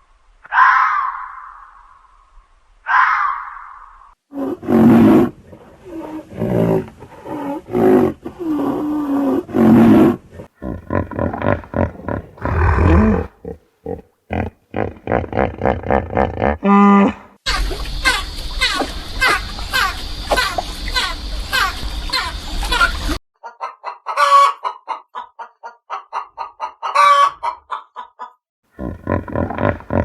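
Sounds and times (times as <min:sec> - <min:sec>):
lion grunting calls: 0:04.3 - 0:17.4, 0:28.8 - 0:30.0
lion roaring: 0:04.4 - 0:17.3, 0:28.8 - 0:30.0.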